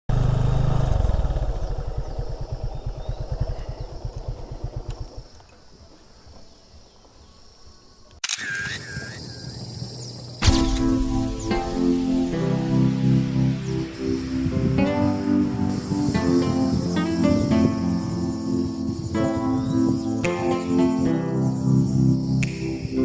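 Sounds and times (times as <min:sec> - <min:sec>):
motorcycle engine running: 0:00.1 - 0:06.0
music: 0:10.4 - 0:23.0.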